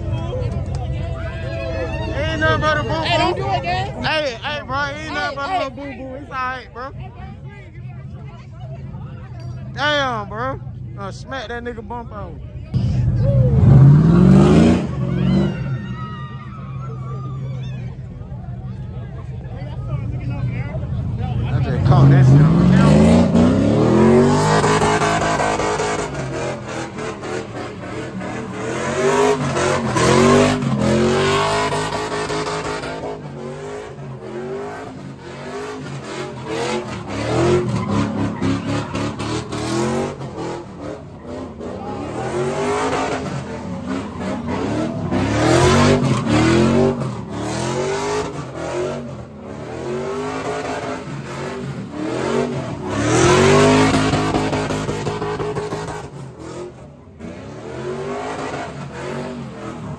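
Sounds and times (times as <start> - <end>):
car engine revving: 9.8 - 15.8, 19.8 - 59.9.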